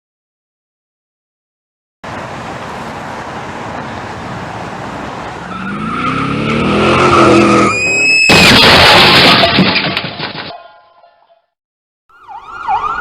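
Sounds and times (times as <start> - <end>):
tyres rushing on road: 2.0 - 10.5
car engine revving: 3.6 - 7.8
tyre squeal: 5.5 - 8.3.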